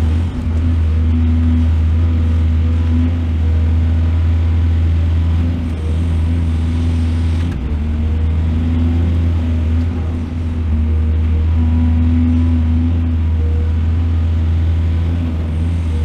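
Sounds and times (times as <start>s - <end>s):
excavator diesel engine humming: 0.0s - 16.0s.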